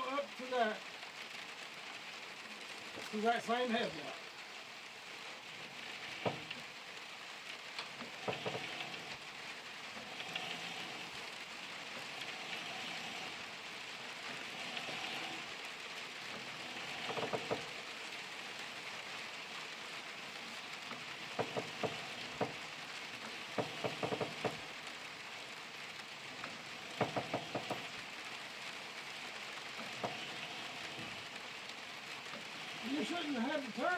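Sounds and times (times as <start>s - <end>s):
steady soft hiss: 0.0s - 33.9s
sawmill carriage knocks and clanks: 5.6s - 6.8s, 8.0s - 13.4s, 16.4s - 17.8s, 20.8s - 24.8s, 26.4s - 28.2s, 29.8s - 31.4s.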